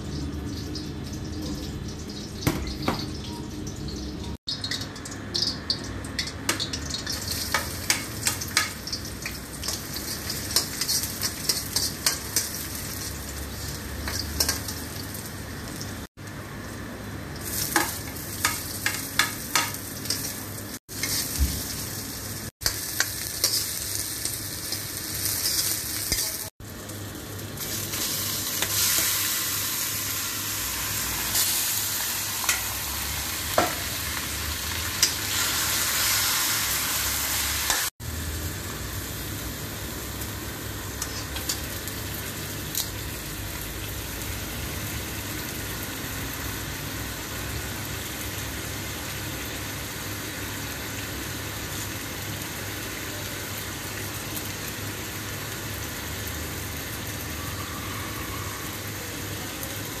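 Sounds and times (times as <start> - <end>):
chicken sizzling in a wok: 0.0 - 60.0.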